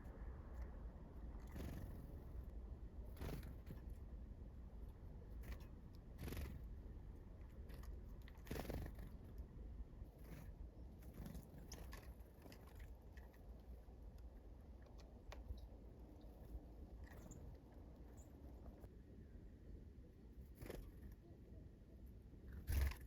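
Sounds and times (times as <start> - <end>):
birds tapping and cracking seeds: 10.4 - 18.8.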